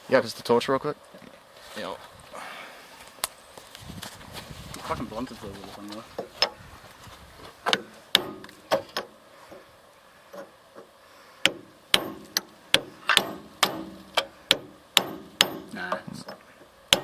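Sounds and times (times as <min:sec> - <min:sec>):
hammer blows on metal: 0:07.7 - 0:09.0, 0:11.4 - 0:17.0.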